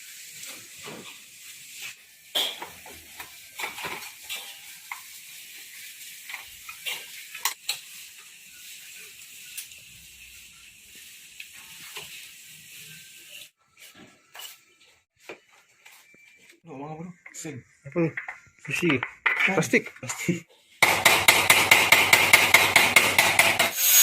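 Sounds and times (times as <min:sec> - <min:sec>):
hand tools clicking and tapping: 0:18.1 - 0:23.8.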